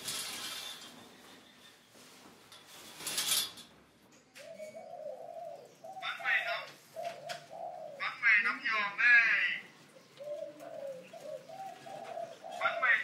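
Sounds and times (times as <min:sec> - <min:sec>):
bird cooing: 0:04.3 - 0:08.6, 0:09.7 - 0:13.0.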